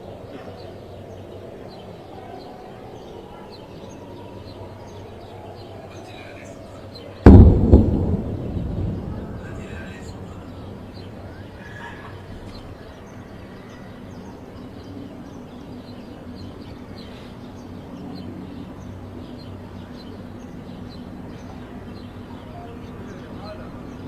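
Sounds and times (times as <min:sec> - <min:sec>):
deep rumble: 0:07.3 - 0:11.6
low background hum: 0:07.3 - 0:12.0.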